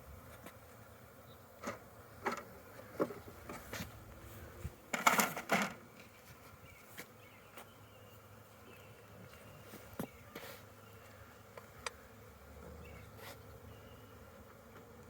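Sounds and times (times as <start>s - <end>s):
honeybees buzzing: 0.0s - 15.0s
knocks from hive handling: 4.9s - 5.8s.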